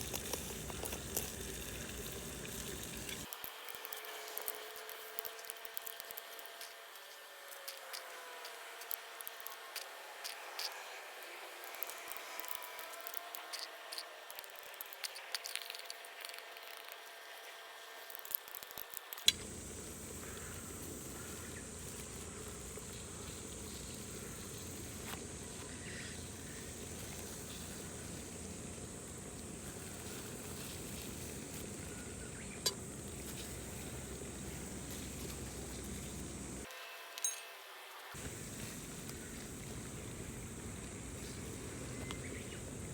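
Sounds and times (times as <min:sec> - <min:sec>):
steady hiss: 0:00.0 - 0:03.4, 0:19.3 - 0:36.7, 0:38.0 - 0:42.9
wood fire crackling: 0:19.3 - 0:25.5
faint high whine: 0:19.3 - 0:42.9.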